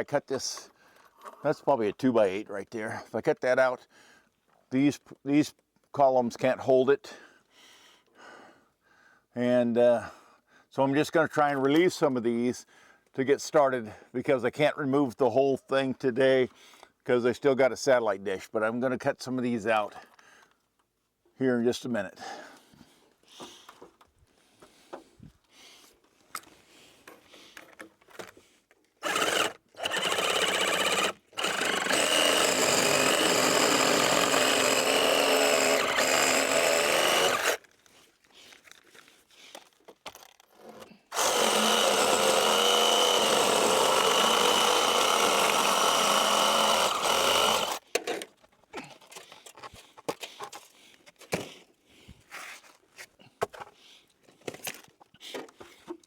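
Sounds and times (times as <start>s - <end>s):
power saw cutting wood: 29.0s - 37.6s, 41.1s - 47.8s.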